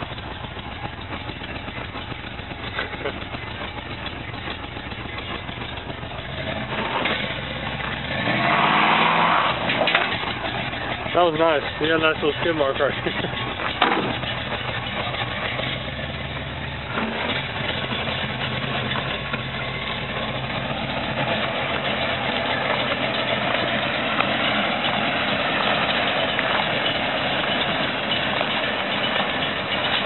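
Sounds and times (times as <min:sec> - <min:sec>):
car engine running at low revs: 0:00.0 - 0:30.0.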